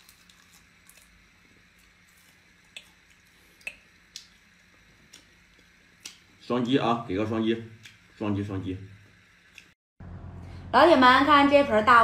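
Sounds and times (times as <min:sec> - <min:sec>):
wet chewing sounds: 0:00.0 - 0:06.4.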